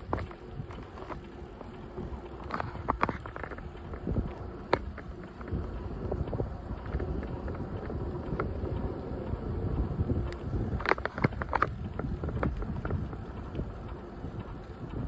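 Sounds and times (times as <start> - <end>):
bicycle tyre rumble: 0.0 - 15.0
wind on microphone: 0.0 - 15.0.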